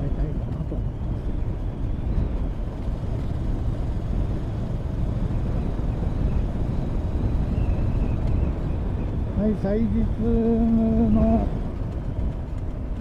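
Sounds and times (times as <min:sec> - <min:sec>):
motorcycle engine rumble: 0:00.0 - 0:13.0
road and wind noise: 0:00.0 - 0:13.0.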